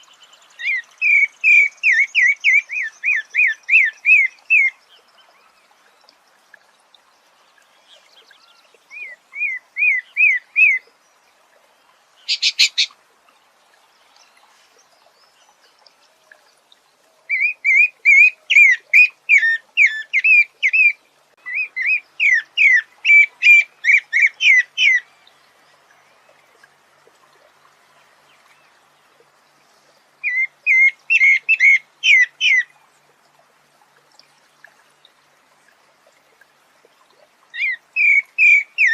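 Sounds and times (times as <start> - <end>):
songbird whistling: 12.3 - 12.9.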